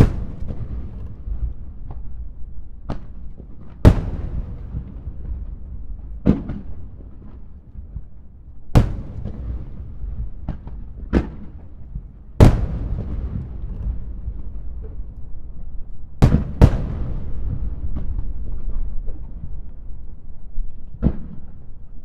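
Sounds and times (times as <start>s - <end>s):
firework shells booming: 0.0s - 19.6s
low rumble: 11.8s - 19.9s.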